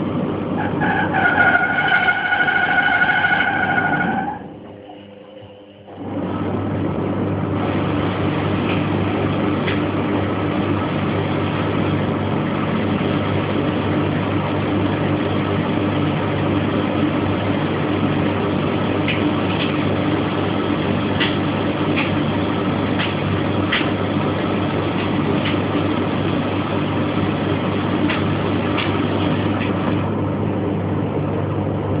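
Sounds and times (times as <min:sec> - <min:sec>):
laundry machine motor humming: 0:00.0 - 0:32.0.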